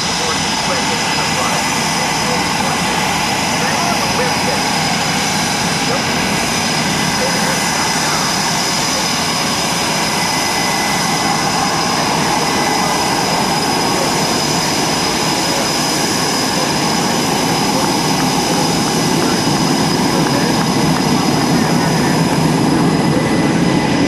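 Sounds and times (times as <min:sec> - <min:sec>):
jet engines roaring and whining: 0:00.0 - 0:24.0.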